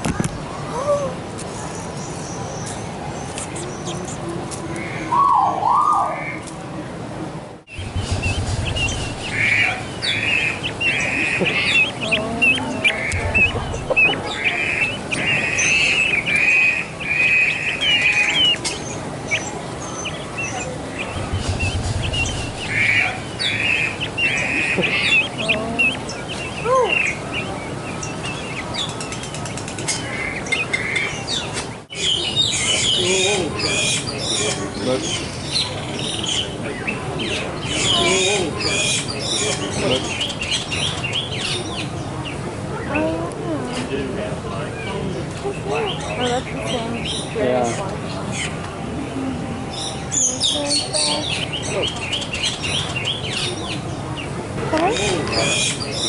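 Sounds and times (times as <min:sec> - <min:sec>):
birds chirping: 0:00.4 - 0:06.5, 0:07.6 - 0:56.0
bird repeated calls: 0:07.7 - 0:42.0, 0:54.7 - 0:56.0.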